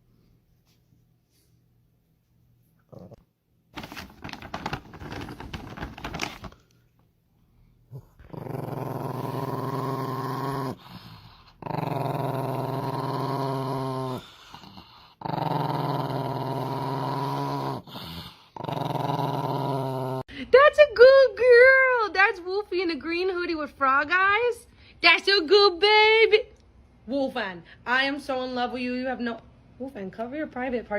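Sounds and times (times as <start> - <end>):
dog growling: 2.8 - 3.3, 7.9 - 20.3.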